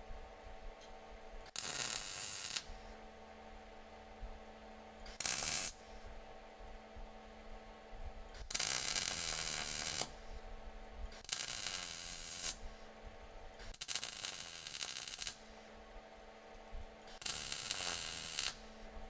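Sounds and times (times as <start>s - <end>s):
steady hum: 0.0s - 13.8s, 14.4s - 19.0s
welding crackle: 1.5s - 2.8s, 5.1s - 5.8s, 8.4s - 10.2s, 11.2s - 12.7s, 13.6s - 15.4s, 17.1s - 18.7s.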